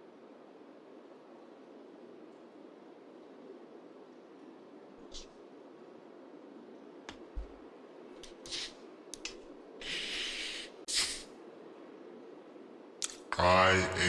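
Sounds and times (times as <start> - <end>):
short hissing sounds: 8.3 - 8.8, 9.8 - 11.3.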